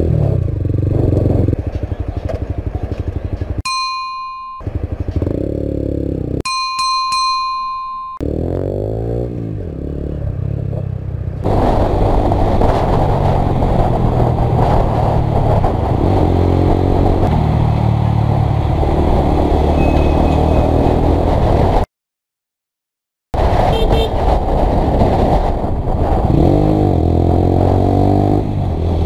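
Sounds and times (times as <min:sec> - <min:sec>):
motorcycle engine running: 0:00.0 - 0:06.4
heavy rushing noise: 0:11.4 - 0:21.8, 0:23.4 - 0:29.0
electronic beep: 0:19.7 - 0:21.0.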